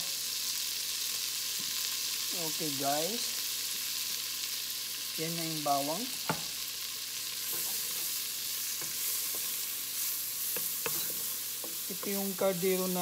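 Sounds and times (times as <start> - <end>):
garlic sizzling in butter: 0.0 - 13.0
wooden spoon stirring: 7.5 - 12.4.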